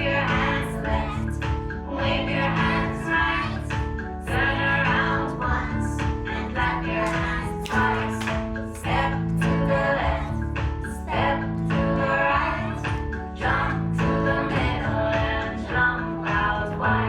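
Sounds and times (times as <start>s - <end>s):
song with singing voices: 0.0s - 17.0s.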